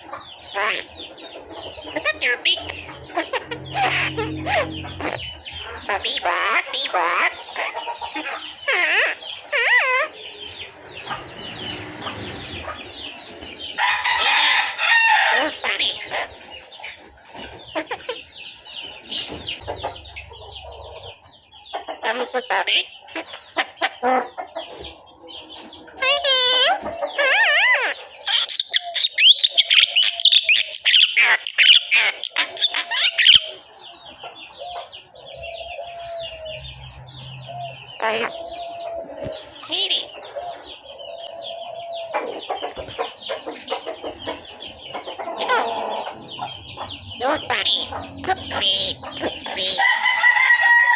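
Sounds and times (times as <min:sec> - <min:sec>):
birds chirping: 0:00.0 - 0:50.9
pet bird chattering: 0:00.5 - 0:00.9, 0:01.9 - 0:10.1, 0:26.0 - 0:33.6, 0:37.6 - 0:38.4, 0:39.6 - 0:40.2, 0:42.6 - 0:49.8.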